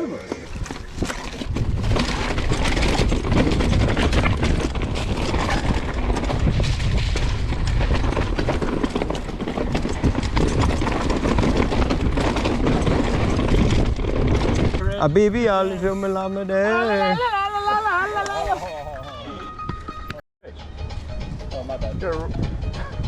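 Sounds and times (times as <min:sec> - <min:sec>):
bike rattling over rocks: 0:00.2 - 0:15.7.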